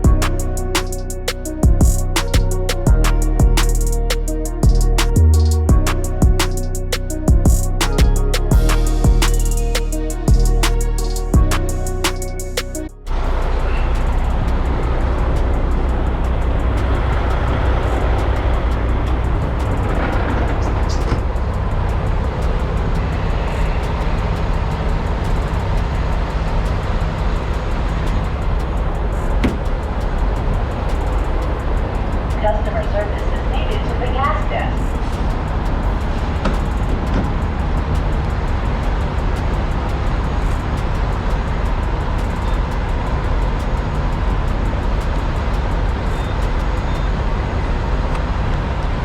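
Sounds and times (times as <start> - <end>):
road noise: 0.0 - 49.0
truck diesel engine rumble: 13.1 - 48.8.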